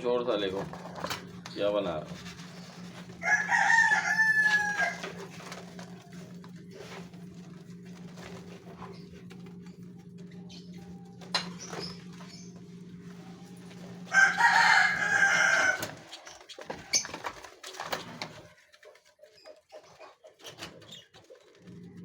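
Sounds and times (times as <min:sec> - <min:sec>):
steady low hum: 0:00.0 - 0:16.2
drawn-out bird call: 0:10.2 - 0:17.3.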